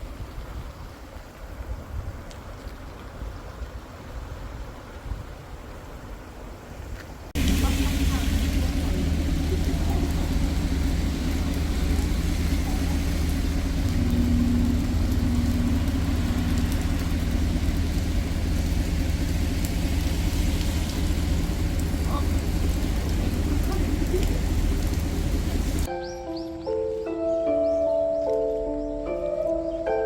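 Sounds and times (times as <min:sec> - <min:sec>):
vehicle rumbling in motion: 0:05.6 - 0:26.6
higher hum: 0:07.4 - 0:30.0.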